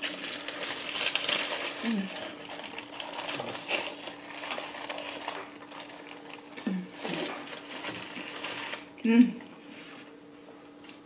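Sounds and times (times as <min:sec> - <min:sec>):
wet chewing of hamburger: 0:00.0 - 0:08.8
paper wrapper crinkling: 0:00.0 - 0:08.9
person humming low: 0:06.6 - 0:07.4.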